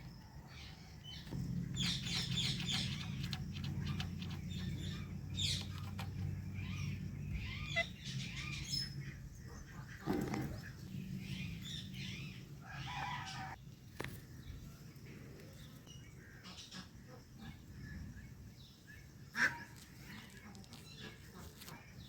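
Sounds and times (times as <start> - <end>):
parrots chirping and squawking: 1.1 - 13.6.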